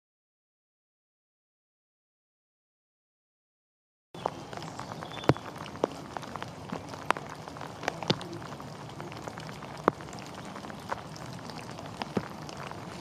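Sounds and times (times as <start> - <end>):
rain hissing: 4.2 - 13.0
raindrops tapping close by: 4.2 - 13.0.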